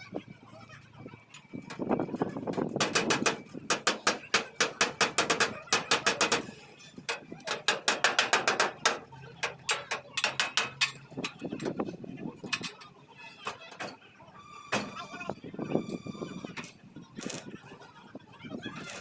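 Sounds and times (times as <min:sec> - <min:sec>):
hammer striking sheet metal: 0:02.8 - 0:06.5.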